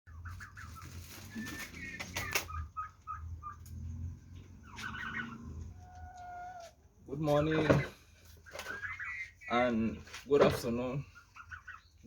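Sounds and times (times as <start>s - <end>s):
turkeys yelping: 0.1s - 12.0s.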